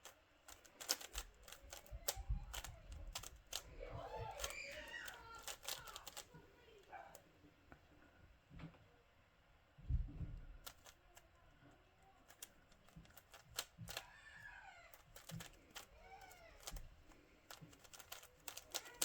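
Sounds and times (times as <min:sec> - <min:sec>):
puzzle cube clicking: 0:00.0 - 0:06.4, 0:10.6 - 0:11.3, 0:12.2 - 0:14.2, 0:14.9 - 0:19.0.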